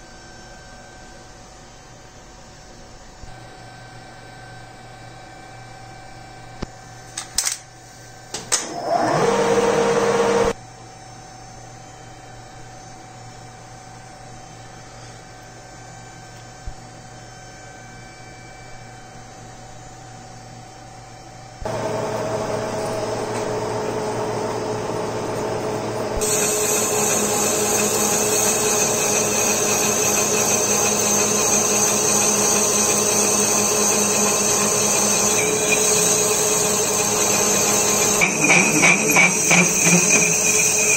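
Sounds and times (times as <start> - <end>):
high whine: 21.6 - 40.9
small electric motor running: 21.7 - 40.9.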